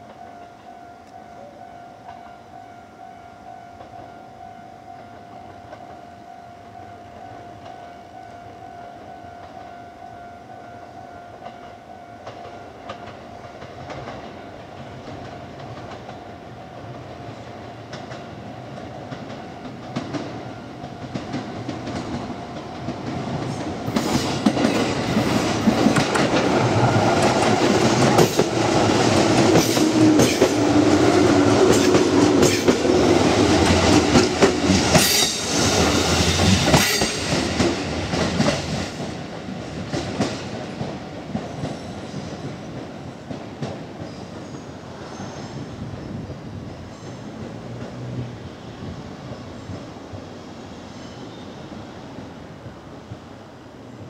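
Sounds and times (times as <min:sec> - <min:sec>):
electric train passing: 0:00.0 - 0:54.0
wheels clacking over rail joints: 0:17.9 - 0:44.7.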